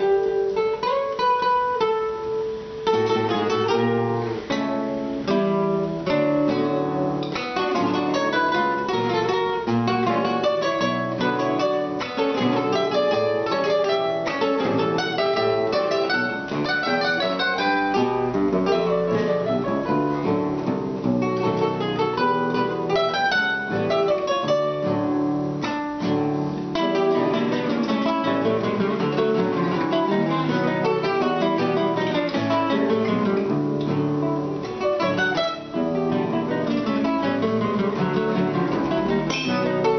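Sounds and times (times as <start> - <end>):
plucked string trio playing: 0.0 - 39.9.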